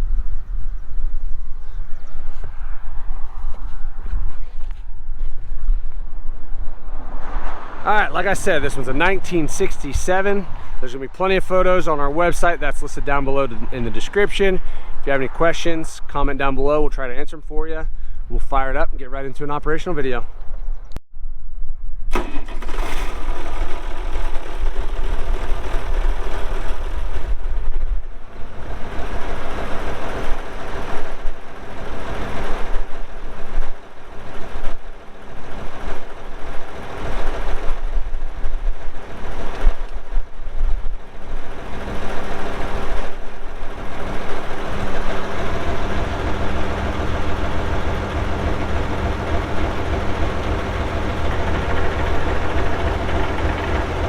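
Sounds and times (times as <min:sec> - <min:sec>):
diesel engine idling: 0:07.7 - 0:16.5, 0:22.1 - 0:54.0.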